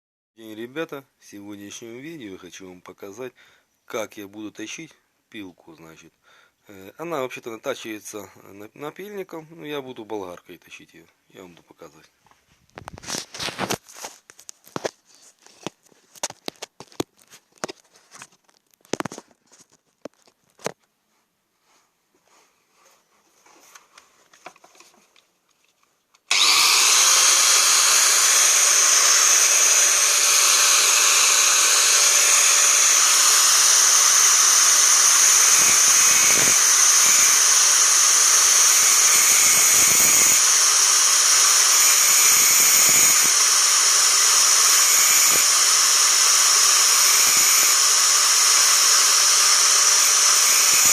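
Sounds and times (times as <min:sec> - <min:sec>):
angle grinder grinding metal: 0:26.3 - 0:50.9.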